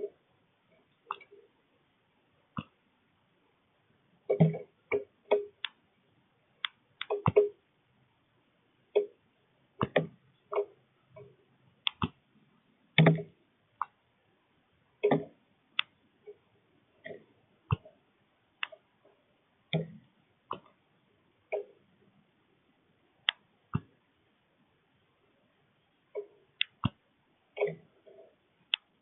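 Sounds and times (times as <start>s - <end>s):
beak clicking and tapping seeds: 6.6s - 7.6s, 11.9s - 12.2s, 26.6s - 27.0s.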